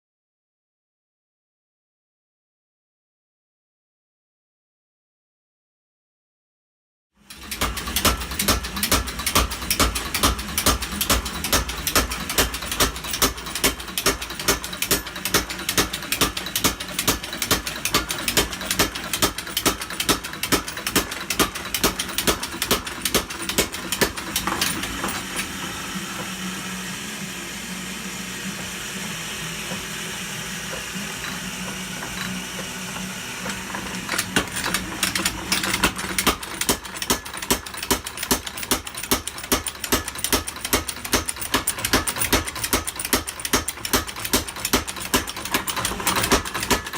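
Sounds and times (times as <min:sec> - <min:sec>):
machine humming: 0:07.3 - 0:37.9.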